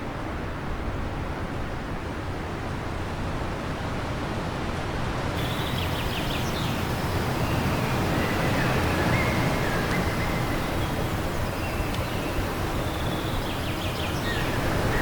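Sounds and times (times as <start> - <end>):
faint bird chirps: 5.4 - 15.0
wind blowing: 5.4 - 15.0.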